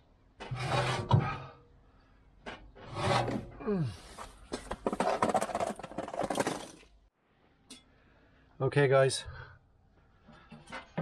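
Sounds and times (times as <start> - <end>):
objects rubbing and scraping: 0.4 - 1.6, 2.5 - 6.4
objects knocking and clattering: 4.5 - 7.0.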